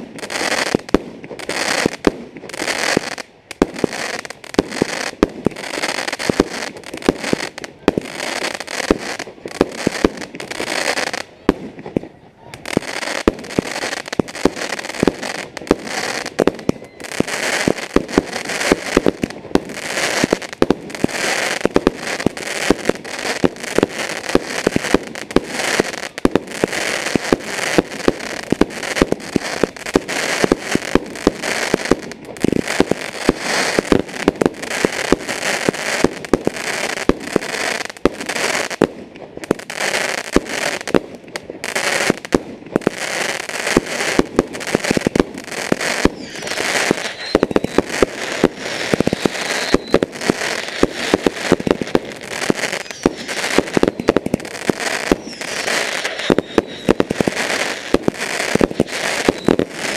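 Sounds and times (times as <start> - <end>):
fireworks bangs and crackles: 0.0 - 59.9
fireworks hiss: 12.6 - 59.9.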